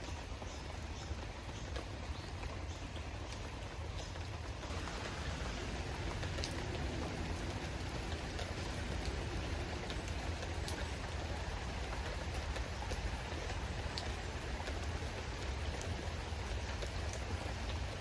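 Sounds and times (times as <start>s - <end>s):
steady rainfall: 0.0s - 18.0s
low rumble: 4.6s - 11.5s.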